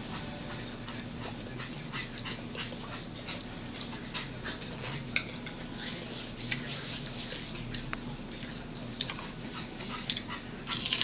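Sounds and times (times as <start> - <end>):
crisp chewing crunches: 10.1 - 11.0.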